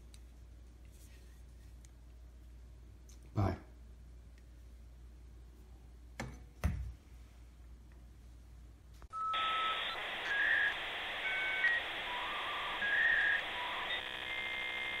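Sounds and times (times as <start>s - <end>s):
electronic hiss: 9.4s - 15.0s.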